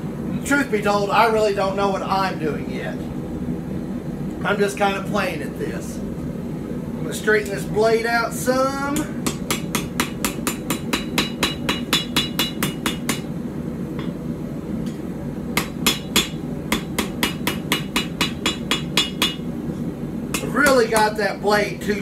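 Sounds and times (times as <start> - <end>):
hammer striking blade on anvil: 9.0 - 13.3, 15.6 - 19.4, 20.3 - 21.1.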